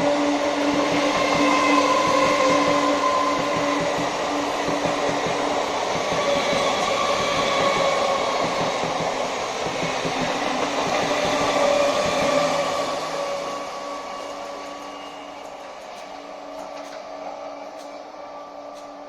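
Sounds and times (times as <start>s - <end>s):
rail and wheel noise: 0.0s - 19.0s.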